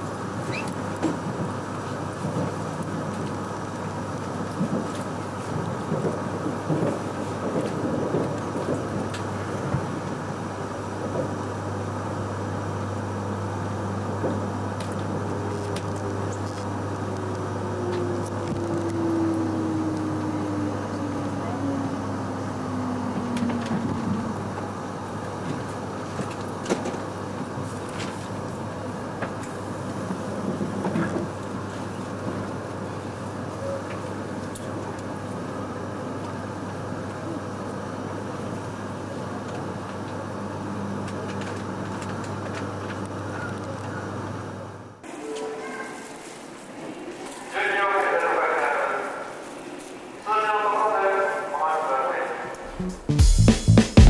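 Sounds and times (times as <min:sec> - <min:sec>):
high-speed train rushing: 0:00.0 - 0:40.8, 0:45.0 - 0:54.0
falling pitch tone: 0:52.6 - 0:54.0.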